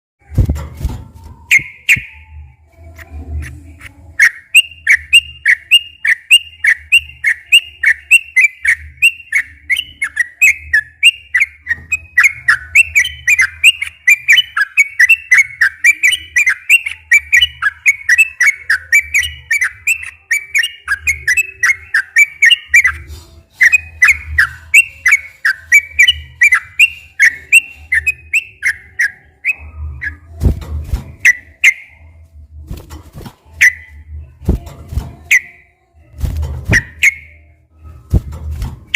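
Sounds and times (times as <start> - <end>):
bird singing whistled notes: 1.5 - 2.6, 4.2 - 30.4, 31.1 - 32.1, 33.6 - 34.6, 35.2 - 35.7, 36.7 - 37.5.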